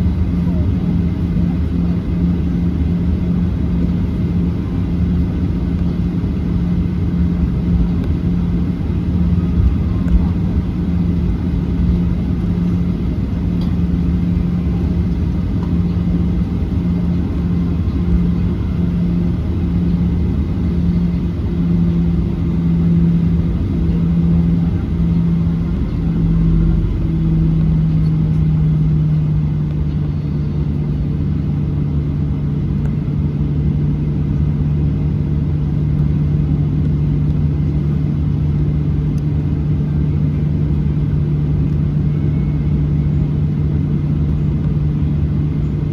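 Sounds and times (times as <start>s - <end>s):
cabin rumble: 0.0s - 30.6s
jet engines low hum: 0.0s - 45.9s.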